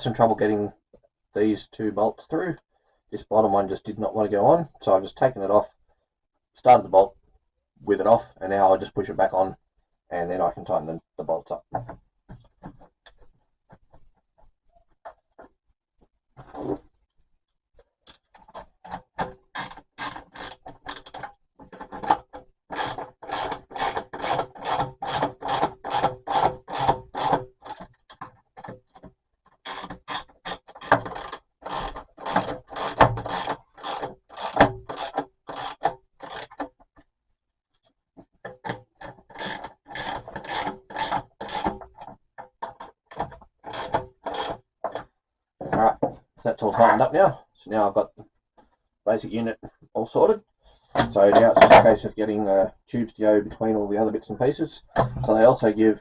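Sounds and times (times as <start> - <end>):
hand tool rasping on bolts: 29.7 - 36.7, 38.6 - 41.9.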